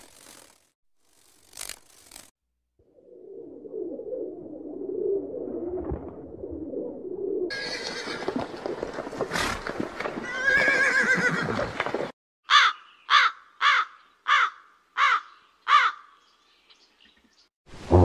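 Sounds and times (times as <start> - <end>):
horse whinnying: 7.5 - 8.4, 10.2 - 11.7
crows cawing: 12.4 - 16.2.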